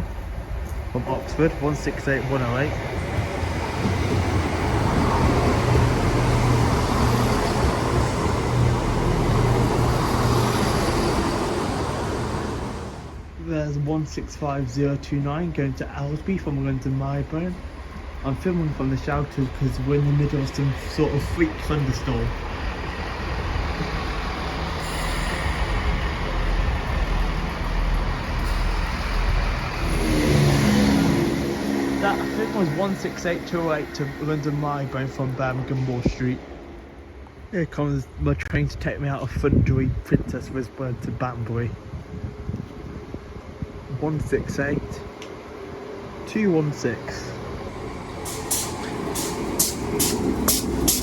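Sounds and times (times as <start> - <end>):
train wheels rolling on rails: 0.0 - 38.1, 41.8 - 51.0
diesel engines droning: 14.6 - 38.5, 42.4 - 51.0.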